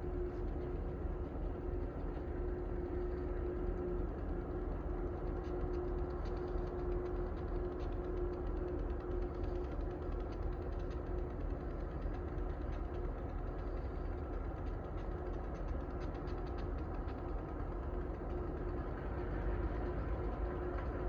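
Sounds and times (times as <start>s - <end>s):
diesel locomotive engine running: 16.8s - 21.0s.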